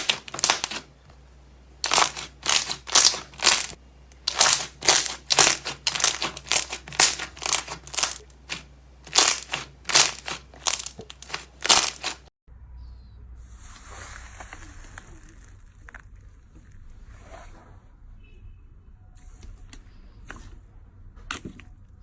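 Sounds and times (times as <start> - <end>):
slime squishing: 0.0 - 0.9, 1.8 - 12.3.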